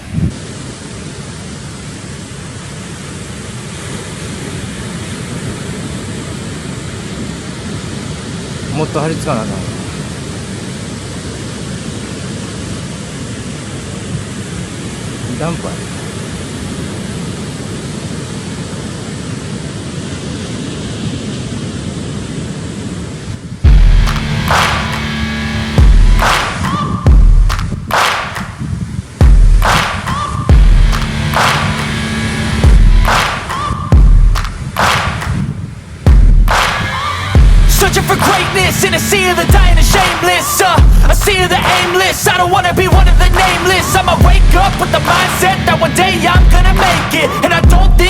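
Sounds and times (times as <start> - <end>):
wind and water rushing on microphone: 0.0 - 24.2, 25.8 - 48.0
ocean surf roaring: 0.0 - 48.0
loud low bump: 23.6 - 27.5, 29.2 - 34.4, 36.1 - 41.4, 42.9 - 48.0
music track with loud hit: 23.6 - 28.5, 29.2 - 35.5, 36.1 - 42.1, 42.8 - 48.0.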